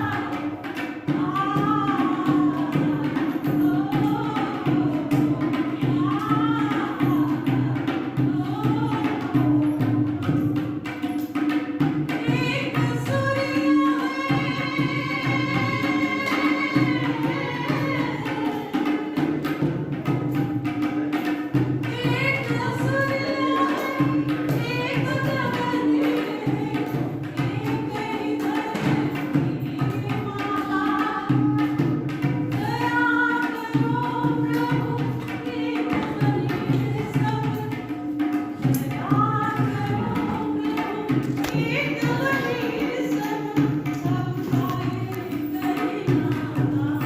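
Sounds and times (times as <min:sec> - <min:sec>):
tabla-like percussion: 0:00.0 - 0:47.0
woman singing: 0:00.0 - 0:47.0.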